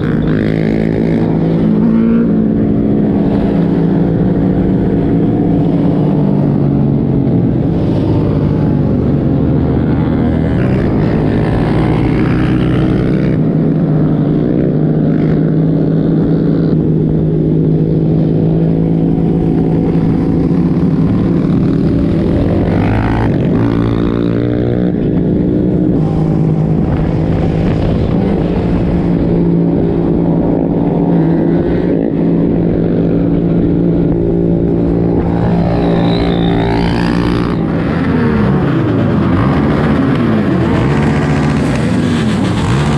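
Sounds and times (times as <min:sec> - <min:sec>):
vehicle engine running: 0:33.2 - 0:42.9.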